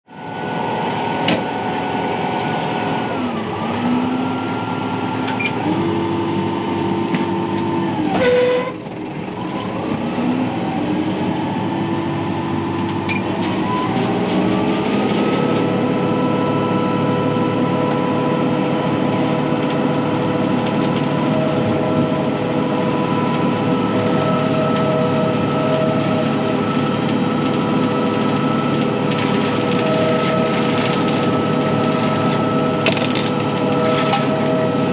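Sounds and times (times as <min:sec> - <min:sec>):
tractor engine droning: 0:00.1 - 0:34.9
hydraulic saw whine: 0:00.2 - 0:34.9.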